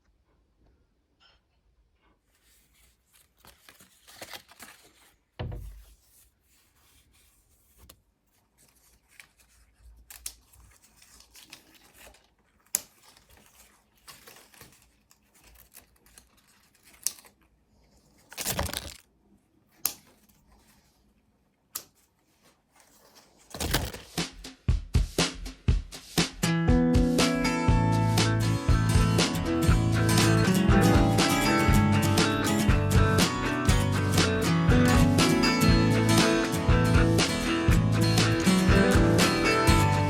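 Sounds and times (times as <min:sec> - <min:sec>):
material rustling and crinkling: 0:02.0 - 0:24.4.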